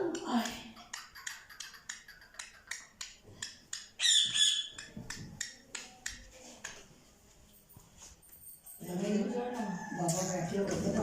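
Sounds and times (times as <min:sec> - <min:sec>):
bird harsh grating call: 0:04.0 - 0:04.9.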